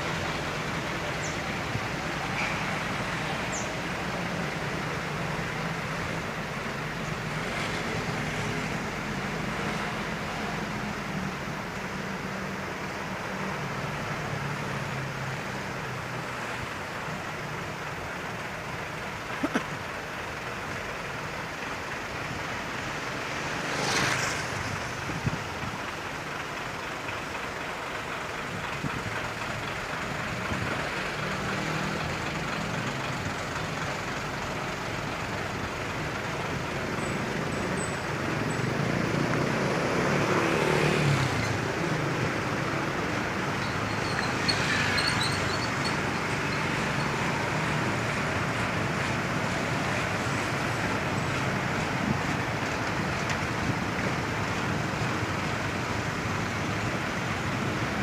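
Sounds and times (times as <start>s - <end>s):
road traffic with trucks: 0.0s - 58.0s
vehicle passing close: 38.1s - 56.4s.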